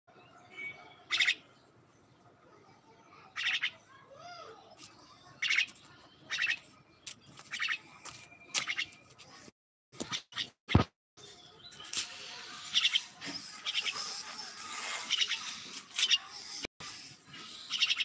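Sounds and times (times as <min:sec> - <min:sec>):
myna chirping calls: 0:00.3 - 0:01.6, 0:03.3 - 0:03.8, 0:05.4 - 0:06.7, 0:07.4 - 0:07.9, 0:08.5 - 0:09.0, 0:12.6 - 0:16.6, 0:17.3 - 0:18.0.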